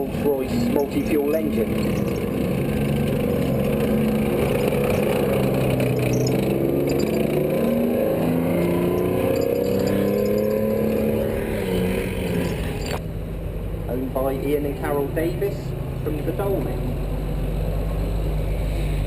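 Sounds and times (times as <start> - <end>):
armoured vehicle engine driving past: 0.0 - 14.1.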